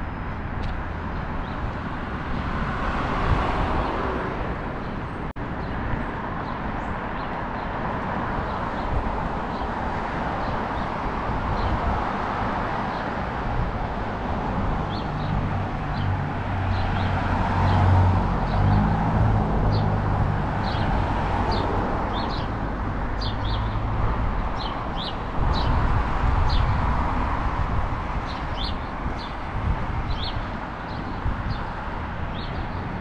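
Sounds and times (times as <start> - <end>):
road traffic rumble: 0.0 - 33.0
small birds chirping: 20.6 - 22.6, 23.2 - 23.8, 24.6 - 25.8, 28.2 - 29.4, 30.1 - 32.9.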